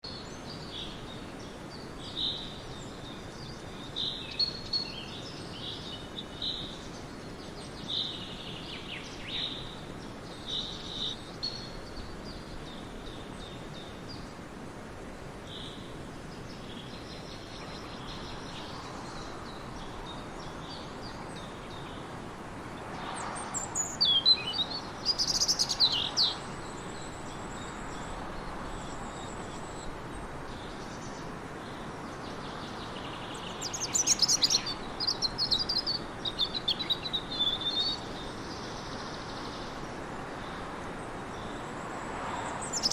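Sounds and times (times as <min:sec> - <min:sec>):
steady background hiss: 0:00.0 - 0:42.9
small bird chirping: 0:23.6 - 0:26.5, 0:33.1 - 0:38.1, 0:42.6 - 0:42.9.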